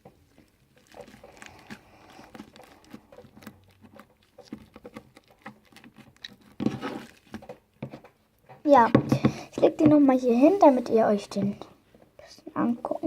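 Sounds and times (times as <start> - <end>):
slime kneaded by hand: 0.0 - 11.7.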